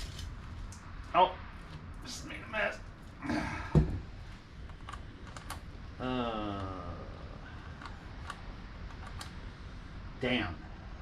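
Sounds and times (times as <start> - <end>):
person groaning: 3.2 - 3.9, 6.0 - 7.5.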